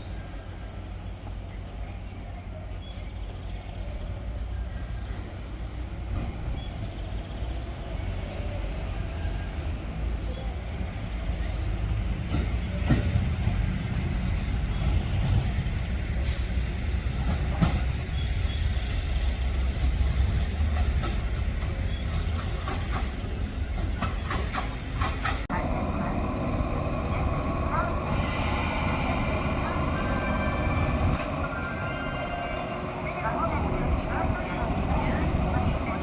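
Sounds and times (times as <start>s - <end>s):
train rumbling: 0.0s - 36.0s
train wheels clacking: 20.2s - 36.0s.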